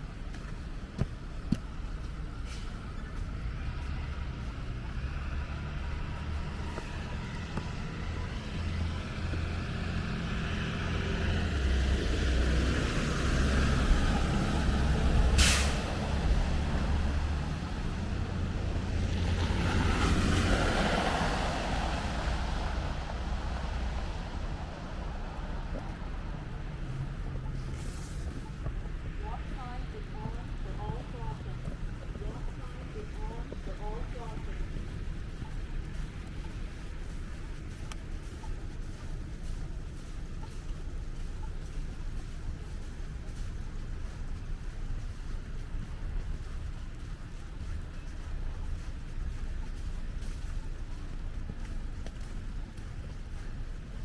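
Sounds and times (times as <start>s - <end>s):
heavy vehicle engine rumbling: 0.0s - 54.0s
vehicle tyre noise passing: 0.0s - 54.0s
air brake hiss: 15.3s - 16.0s, 27.8s - 28.2s.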